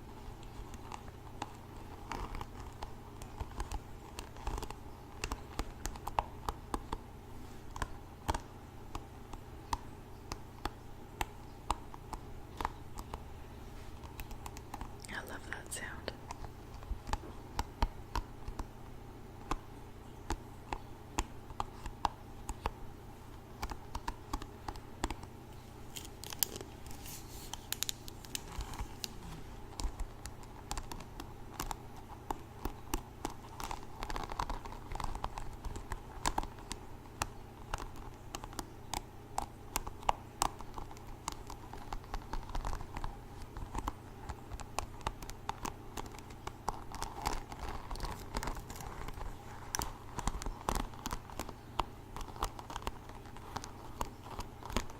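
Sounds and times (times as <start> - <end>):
hairbrush bristles scratching: 25.6 - 29.7.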